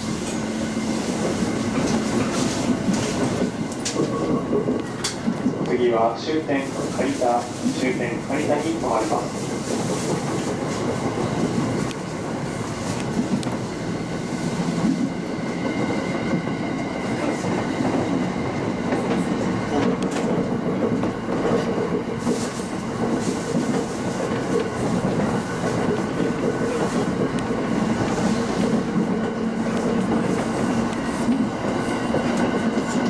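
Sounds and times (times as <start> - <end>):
wheels clickety-clack: 0.0 - 5.9, 17.1 - 33.0
train wheels rumbling on rail: 0.0 - 33.0.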